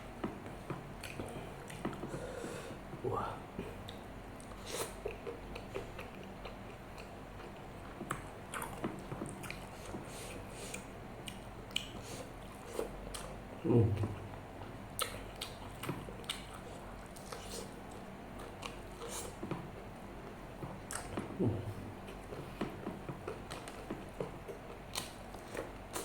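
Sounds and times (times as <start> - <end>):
person chewing food: 0.2 - 3.0, 3.6 - 13.4, 14.0 - 26.0
low throat sound: 21.3 - 22.0.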